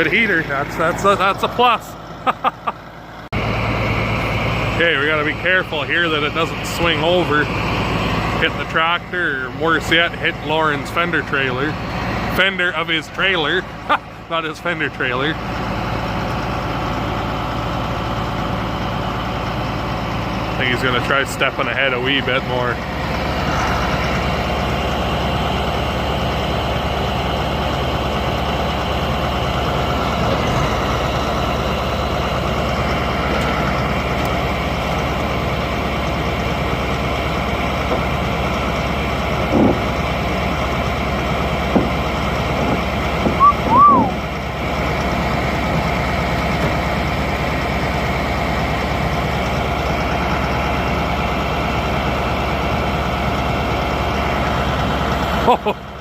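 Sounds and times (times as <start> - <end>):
tractor engine straining: 0.0 - 56.0
short squeal: 43.4 - 44.2.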